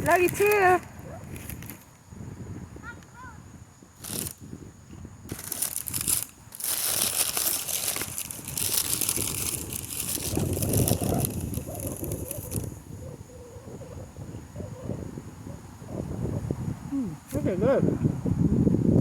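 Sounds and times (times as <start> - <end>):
paper bag crinkling: 0.0 - 1.8, 4.0 - 4.4, 5.3 - 12.8.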